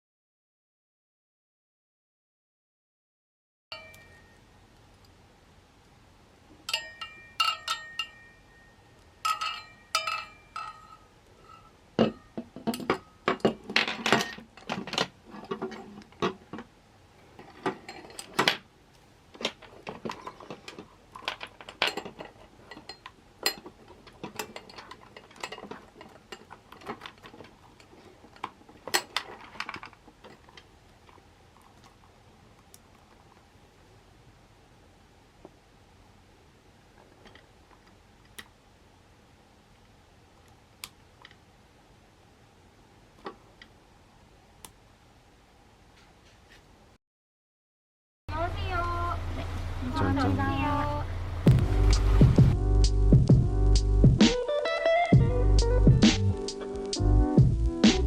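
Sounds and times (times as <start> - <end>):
dishes and cookware clinking: 3.8 - 4.4, 6.6 - 16.7, 17.4 - 18.6, 19.8 - 30.6.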